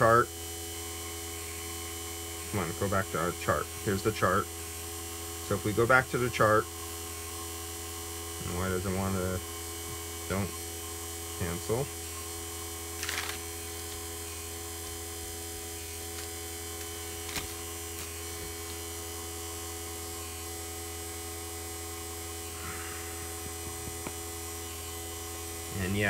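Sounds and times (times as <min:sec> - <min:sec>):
vacuum pump motor humming: 0:00.0 - 0:26.0.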